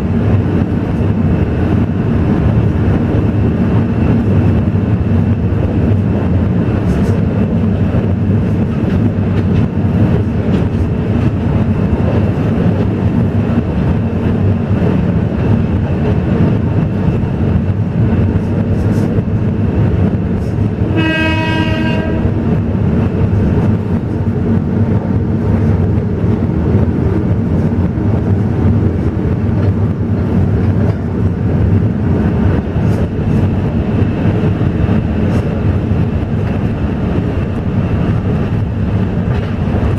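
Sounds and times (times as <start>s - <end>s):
train rumbling: 0.0s - 39.9s
train horn: 20.9s - 22.6s.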